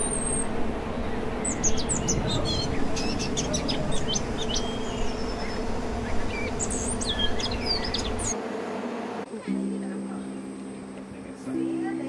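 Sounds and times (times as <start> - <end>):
birds chirping and whistling: 0.0 - 8.4.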